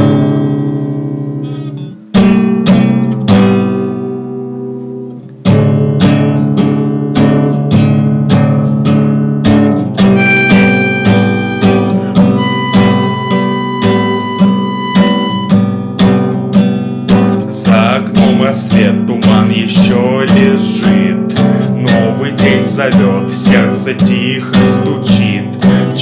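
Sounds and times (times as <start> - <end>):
strummed acoustic guitar: 0.0 - 26.0
high held melody line: 10.1 - 15.9.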